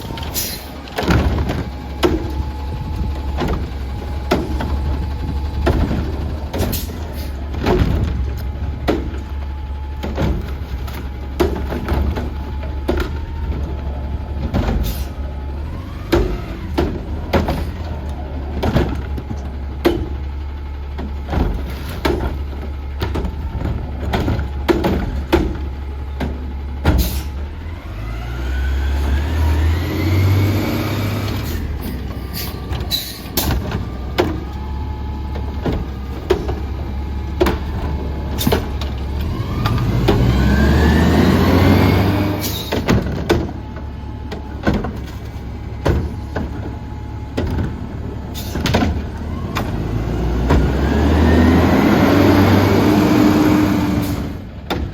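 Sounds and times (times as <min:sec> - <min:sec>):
garbage truck engine idling: 0:00.0 - 0:54.9
engine revving with rising whine: 0:27.6 - 0:31.8, 0:39.0 - 0:42.6, 0:49.1 - 0:54.4.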